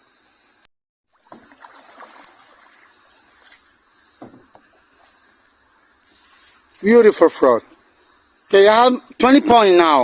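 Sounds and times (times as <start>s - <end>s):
night insects chorus: 0.0s - 10.0s
kayak paddle in water: 1.1s - 5.5s.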